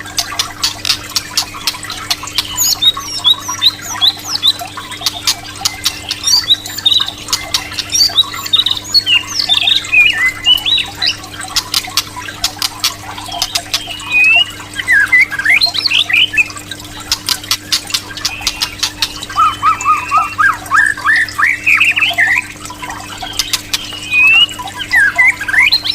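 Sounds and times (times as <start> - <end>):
sharp bird clicks: 0.1 - 14.5, 17.0 - 20.3, 23.2 - 24.5
bird singing whistled notes: 6.3 - 11.1, 13.3 - 16.5, 18.2 - 25.9.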